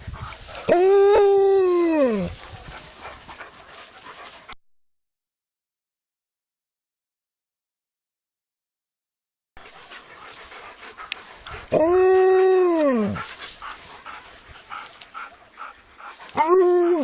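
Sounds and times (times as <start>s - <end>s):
dog howling: 0.7s - 2.3s
faint background noise: 9.6s - 17.0s.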